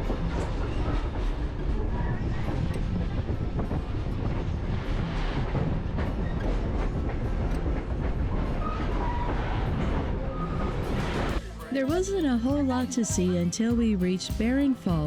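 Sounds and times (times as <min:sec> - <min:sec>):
train wheels clickety-clack: 0:00.0 - 0:11.4.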